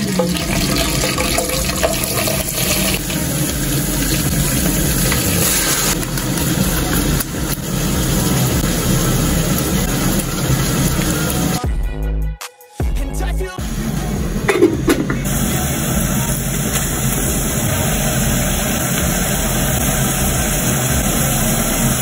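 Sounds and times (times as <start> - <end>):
onions sizzling in hot oil: 0.0 - 11.6, 14.5 - 22.0.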